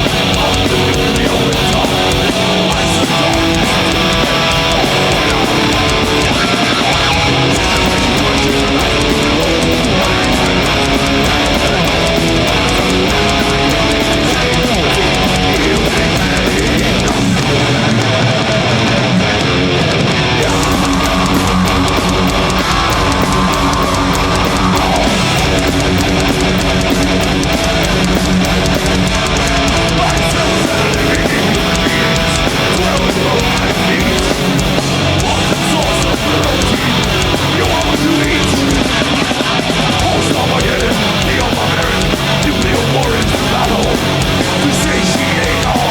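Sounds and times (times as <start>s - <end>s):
heavy metal band playing live: 0.0s - 45.9s.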